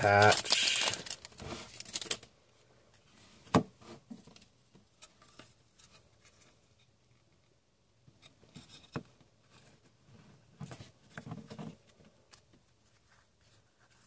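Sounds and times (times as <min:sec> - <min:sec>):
trading cards and wrapper rustling: 0:00.0 - 0:02.3.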